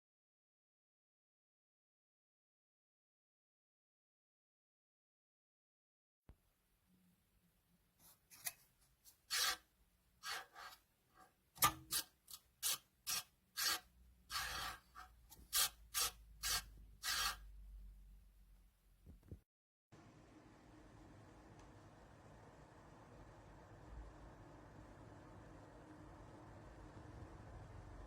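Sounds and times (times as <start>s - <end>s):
rasping scraping strokes: 8.0s - 17.5s
faint low rumble: 20.0s - 28.0s.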